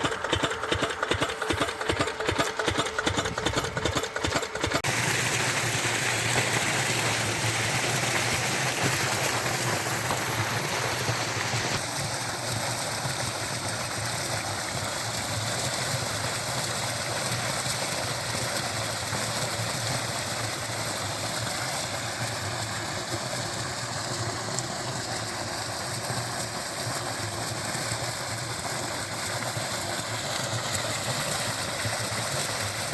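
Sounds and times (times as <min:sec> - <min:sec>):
diesel engine running: 0:00.0 - 0:06.6
water gushing from outlet: 0:00.0 - 0:32.9.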